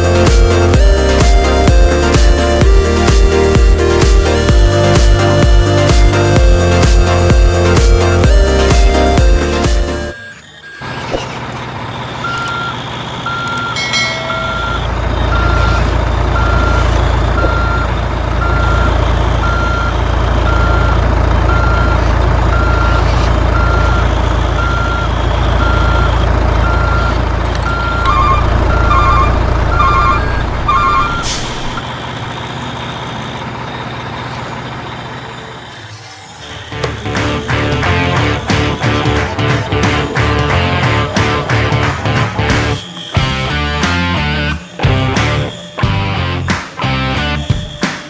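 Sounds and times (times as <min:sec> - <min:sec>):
reversing alarm beeping: 0:00.0 - 0:48.0
truck engine rumbling: 0:00.0 - 0:48.0
quick double-beep tone: 0:12.2 - 0:31.9, 0:36.9 - 0:48.0.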